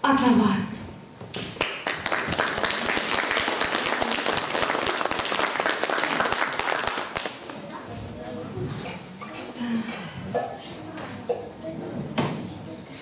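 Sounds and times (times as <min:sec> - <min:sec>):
audience applauding: 0:01.6 - 0:07.6.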